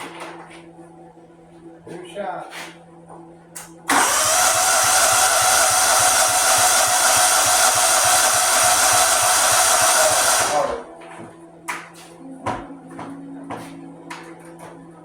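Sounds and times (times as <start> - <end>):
lawnmower engine cranking: 3.9 - 10.8.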